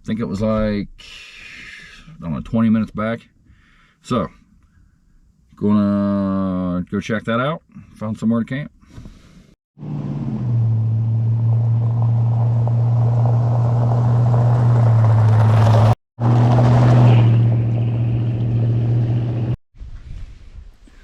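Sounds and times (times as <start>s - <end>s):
car engine droning: 9.8s - 19.6s
road noise: 9.8s - 19.6s.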